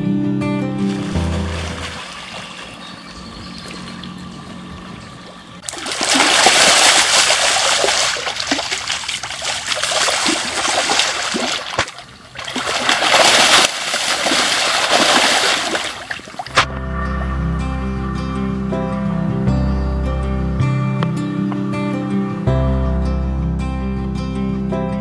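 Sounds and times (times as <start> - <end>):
splashing in shallow water: 0.8 - 22.8.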